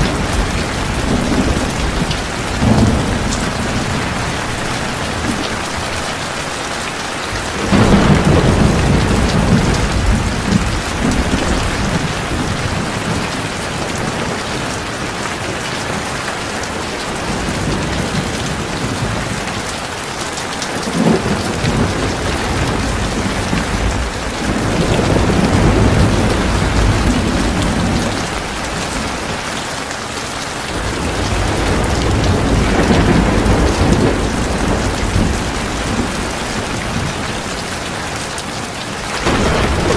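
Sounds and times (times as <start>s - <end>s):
thunder rumbling: 0.0s - 6.5s, 7.1s - 14.8s, 20.8s - 29.7s, 30.6s - 38.4s, 39.2s - 39.9s
heavy rain pouring: 0.0s - 39.9s.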